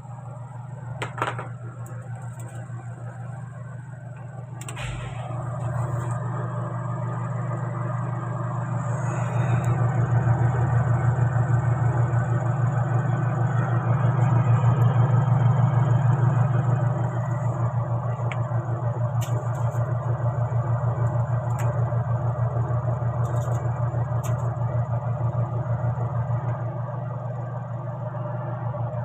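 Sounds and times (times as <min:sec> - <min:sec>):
short click: 0:04.6 - 0:05.2
motor humming: 0:04.6 - 0:06.5.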